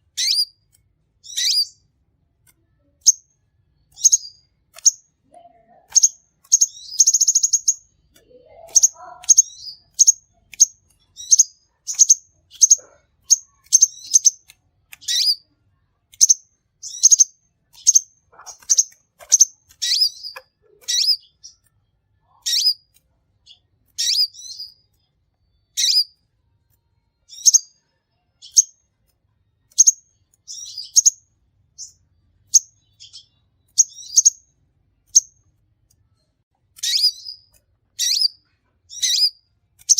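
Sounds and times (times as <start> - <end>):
bird chirping high and sharp: 0.0 - 1.9, 2.9 - 5.2, 5.8 - 15.5, 16.1 - 21.7, 22.3 - 24.9, 25.6 - 26.2, 27.2 - 27.8, 29.7 - 35.5, 36.8 - 39.9.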